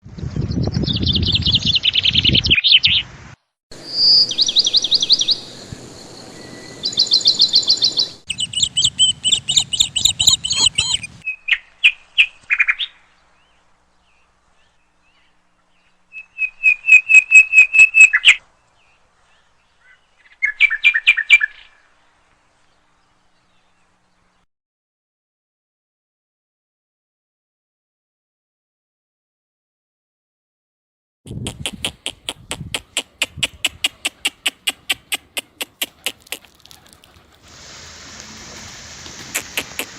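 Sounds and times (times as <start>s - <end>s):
songbirds chirping in trills: 3.8s - 24.4s, 31.3s - 37.4s, 39.2s - 39.9s.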